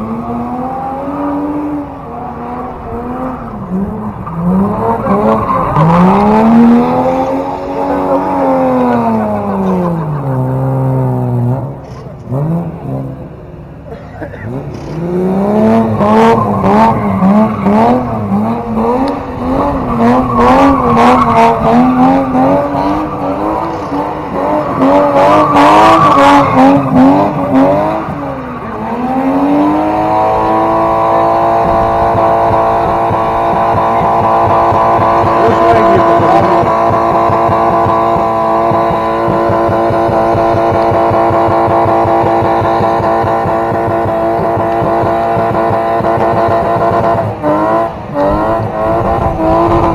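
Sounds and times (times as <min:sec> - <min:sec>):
car engine revving hard: 0:00.0 - 0:49.9
sharp exhaust pops: 0:31.6 - 0:47.2.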